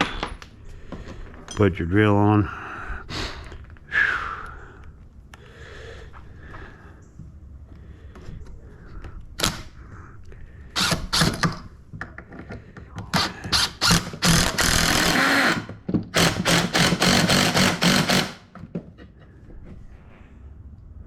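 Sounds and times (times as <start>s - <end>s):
power drill bursts: 10.8s - 11.4s, 13.2s - 18.5s.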